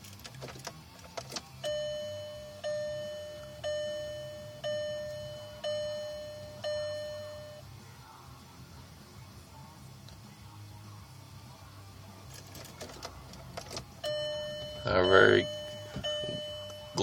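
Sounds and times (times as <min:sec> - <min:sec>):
dashboard warning chime: 0:01.6 - 0:07.7, 0:14.0 - 0:17.0.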